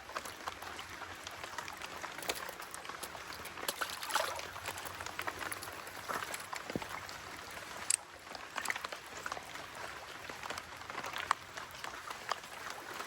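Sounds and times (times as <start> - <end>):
water pattering and splashing: 0.0 - 13.0
sharp water splash: 3.6 - 4.8.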